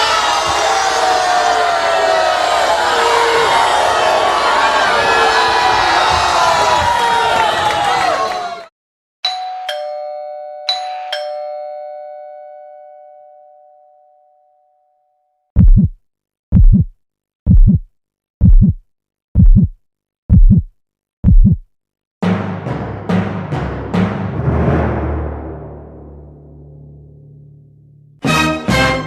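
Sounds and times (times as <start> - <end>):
two-tone doorbell chime: 9.2 - 15.4
heartbeat thumps: 15.6 - 16.9, 17.5 - 18.8, 19.4 - 21.6.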